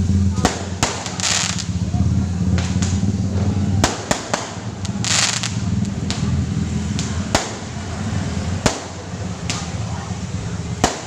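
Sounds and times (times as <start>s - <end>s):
firework hissing burst: 0.0s - 11.0s
fireworks bangs: 0.0s - 11.0s
low background rumble: 0.0s - 11.0s.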